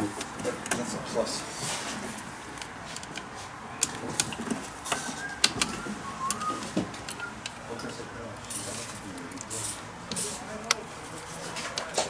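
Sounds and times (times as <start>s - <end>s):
hand tools clicking and tapping: 2.5s - 7.7s.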